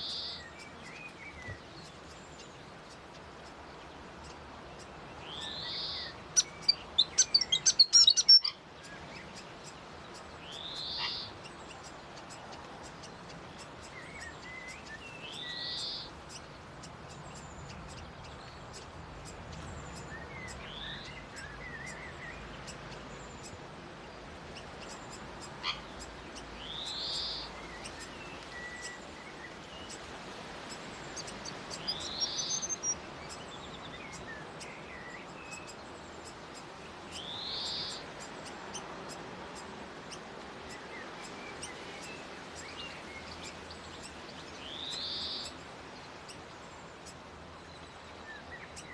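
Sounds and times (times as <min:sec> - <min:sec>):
faint bird chirps: 0:00.0 - 0:23.6, 0:24.5 - 0:30.1, 0:30.7 - 0:39.7.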